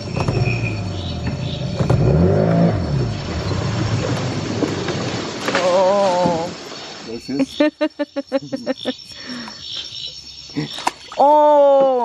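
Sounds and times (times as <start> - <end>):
engine running: 0.0 - 5.6.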